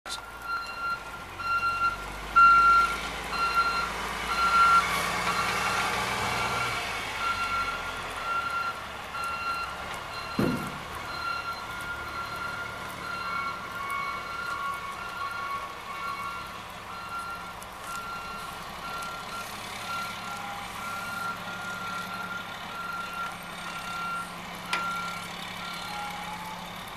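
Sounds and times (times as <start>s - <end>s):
engine rumbling: 0.1s - 26.9s
truck reversing alarm beeping: 0.1s - 26.9s
short thump: 10.4s - 10.9s.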